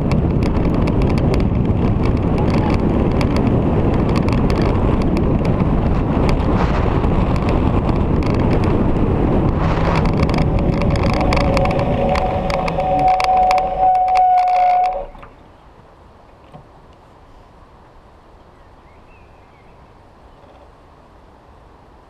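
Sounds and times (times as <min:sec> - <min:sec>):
motorcycle engine: 0:00.0 - 0:15.4
wind rush over microphone: 0:00.0 - 0:15.5
steady high whine: 0:08.2 - 0:15.4.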